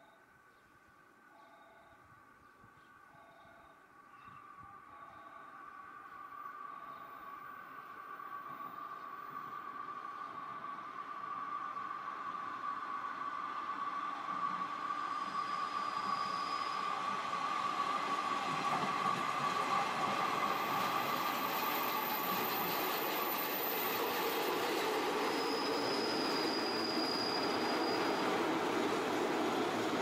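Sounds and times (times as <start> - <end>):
train rumbling past: 5.5 - 30.0
high ringing from wheels and rails: 6.7 - 30.0.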